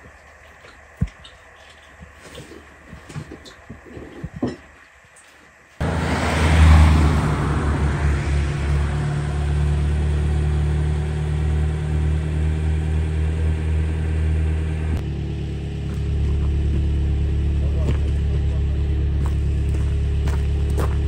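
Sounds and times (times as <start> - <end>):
car engine idling: 5.8 - 21.0.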